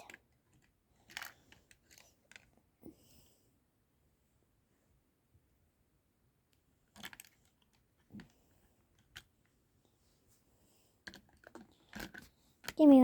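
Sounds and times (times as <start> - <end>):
plastic pieces clicking: 0.0 - 2.5.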